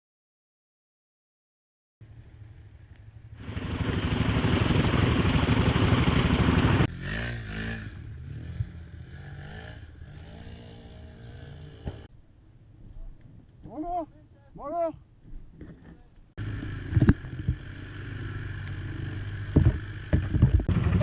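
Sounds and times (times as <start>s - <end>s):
quad engine revving: 2.6s - 12.1s, 16.4s - 21.0s
loud rush of noise: 3.4s - 6.9s.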